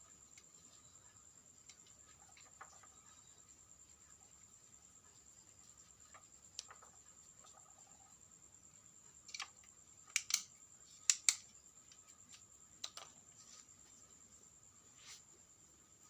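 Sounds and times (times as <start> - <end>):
faint high-pitched whine: 0.0 - 16.0
small parts clicking and snapping: 9.2 - 12.1, 12.8 - 13.2.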